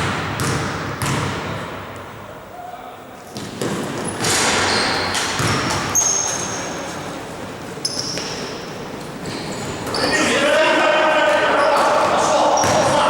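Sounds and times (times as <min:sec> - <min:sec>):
din of players and spectators: 0:00.9 - 0:13.0
shoes squeaking on court: 0:03.3 - 0:10.4, 0:11.3 - 0:13.0.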